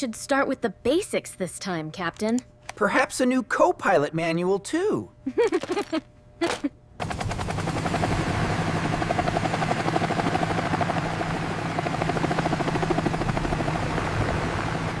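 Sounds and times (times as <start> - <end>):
helicopter rotor chopping: 5.5 - 15.0
helicopter engine hum: 6.6 - 15.0.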